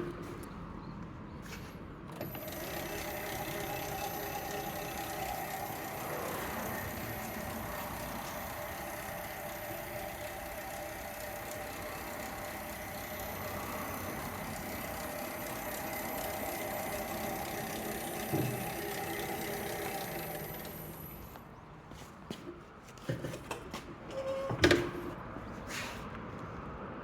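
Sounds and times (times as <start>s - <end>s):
band saw whining: 2.1s - 21.4s.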